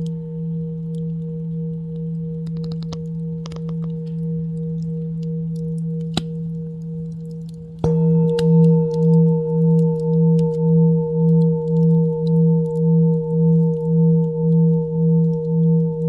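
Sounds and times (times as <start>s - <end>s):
faint crackles: 0.9s - 10.6s
singing bowl ringing: 7.8s - 16.0s.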